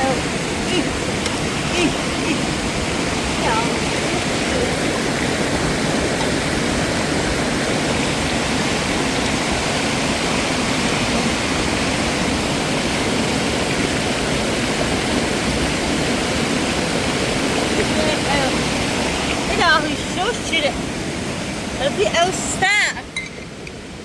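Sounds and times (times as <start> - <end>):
fast-flowing mountain water: 0.0 - 24.0.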